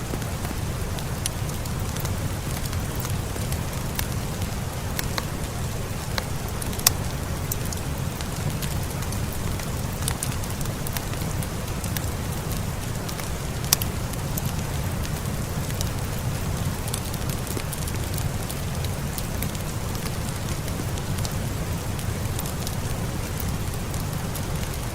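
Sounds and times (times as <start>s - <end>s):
fireplace crackling: 0.0s - 24.9s
steady rain: 0.0s - 24.9s
fire pops: 6.1s - 12.0s.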